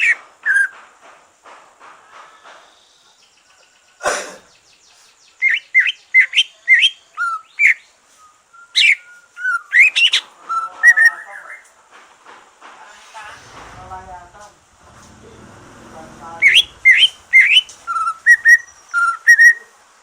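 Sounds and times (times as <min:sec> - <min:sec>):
bird singing whistled notes: 0:02.7 - 0:11.6, 0:16.4 - 0:19.7
harsh burst of noise: 0:12.6 - 0:19.1.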